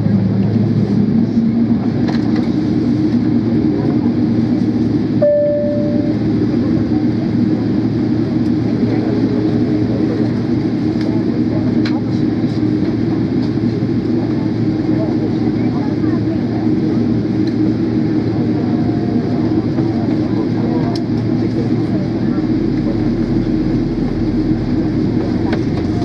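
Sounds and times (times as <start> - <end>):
airplane engines and airflow rumbling: 0.0 - 26.0
short high tone: 5.2 - 6.5.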